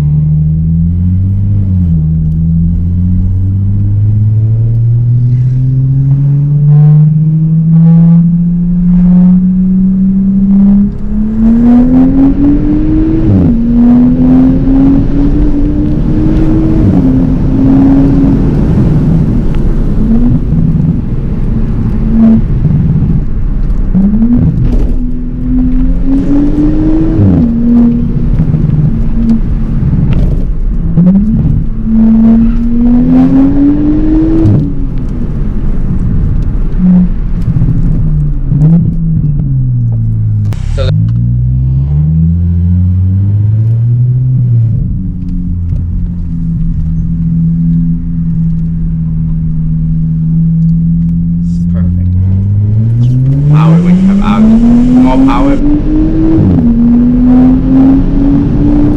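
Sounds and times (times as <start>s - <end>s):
car exhaust under acceleration: 0.0s - 58.9s.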